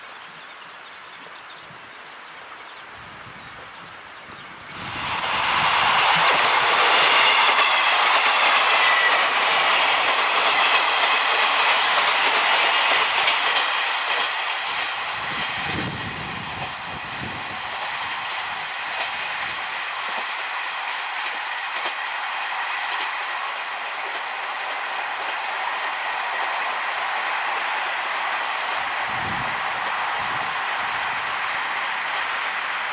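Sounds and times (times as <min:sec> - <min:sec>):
train wheels clattering over rail joints: 0:05.1 - 0:23.2.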